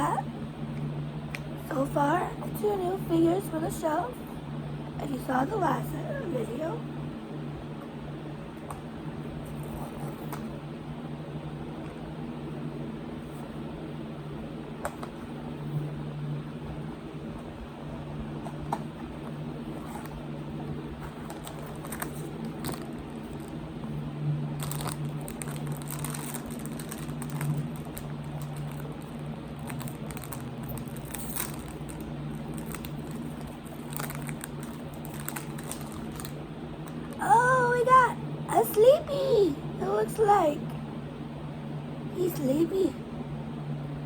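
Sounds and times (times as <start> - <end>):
steady low hum: 0.0 - 44.0
packaging crinkling and rustling: 21.0 - 23.6, 24.6 - 37.3.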